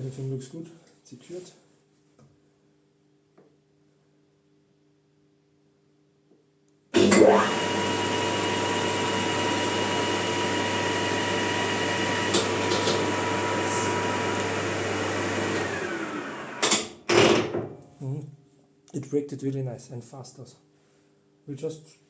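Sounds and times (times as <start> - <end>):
lathe motor and gear whine: 7.0 - 16.8
lathe clicks: 12.3 - 13.3.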